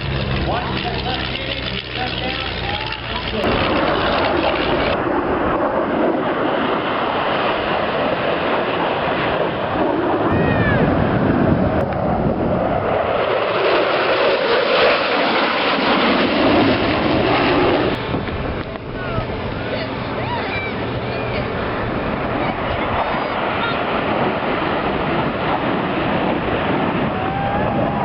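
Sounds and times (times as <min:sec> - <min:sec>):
aircraft engine roar: 0:00.0 - 0:28.0.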